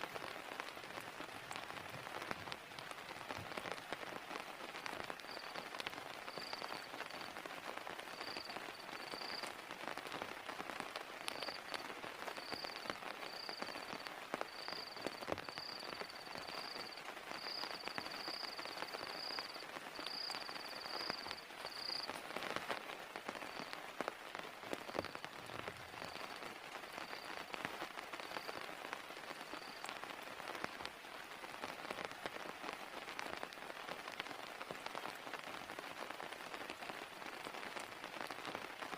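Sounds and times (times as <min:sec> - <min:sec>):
heavy rain falling: 0:00.0 - 0:38.9
faint high chirping tone: 0:05.3 - 0:05.6, 0:08.1 - 0:09.4, 0:12.4 - 0:22.2.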